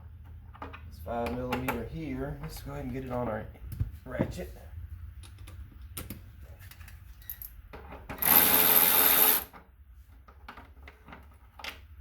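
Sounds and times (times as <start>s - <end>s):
electric ratchet motor: 8.2s - 9.5s.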